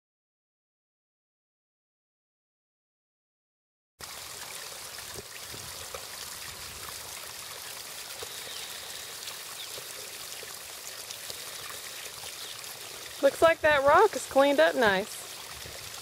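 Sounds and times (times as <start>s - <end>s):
water trickling over stone fountain: 4.0s - 16.0s.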